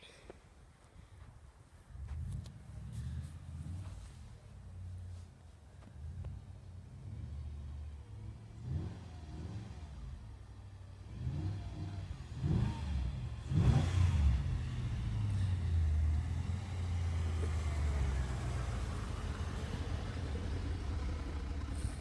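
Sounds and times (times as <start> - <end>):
car engine revving: 6.0 - 22.0.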